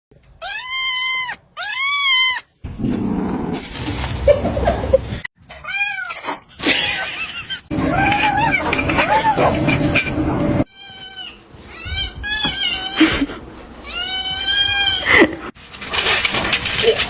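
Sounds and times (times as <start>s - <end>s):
kitten meowing: 0.4s - 2.4s.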